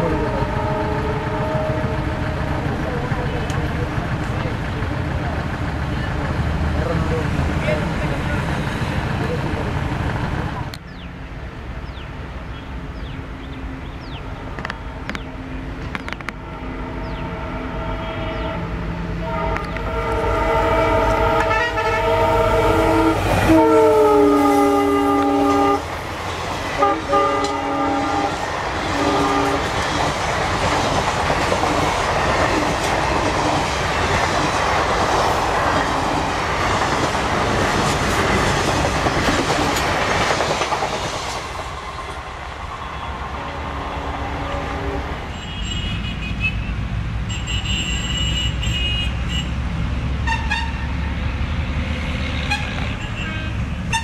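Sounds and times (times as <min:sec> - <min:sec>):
train coaches rattling past: 0:00.0 - 0:46.2
locomotive air horn: 0:00.2 - 0:02.4, 0:16.4 - 0:25.9, 0:26.8 - 0:29.7, 0:42.8 - 0:49.6, 0:50.2 - 0:50.9, 0:52.4 - 0:54.0.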